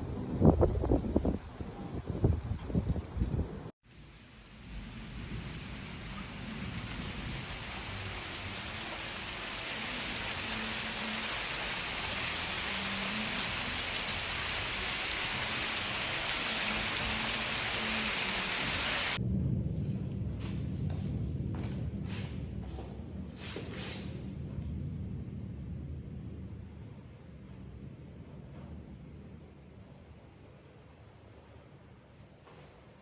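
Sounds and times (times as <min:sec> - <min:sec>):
heavy rain falling: 0:03.9 - 0:19.2.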